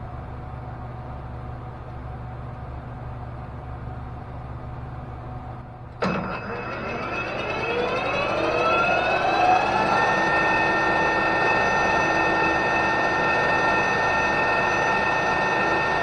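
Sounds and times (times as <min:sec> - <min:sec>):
metal lathe motor whine: 0:06.0 - 0:16.0.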